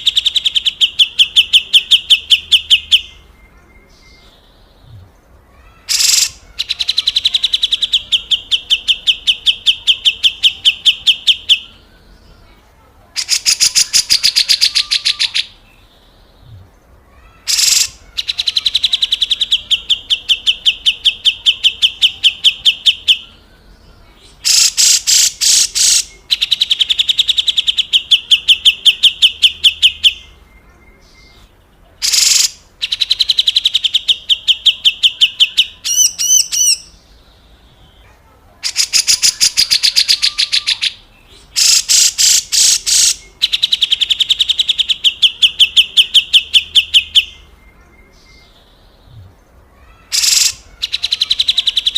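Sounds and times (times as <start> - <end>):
bird harsh rattling call: 5.6 - 7.7, 13.2 - 15.5, 17.2 - 19.2, 24.4 - 26.1, 32.0 - 33.3, 38.6 - 40.9, 41.6 - 43.2, 49.9 - 51.9.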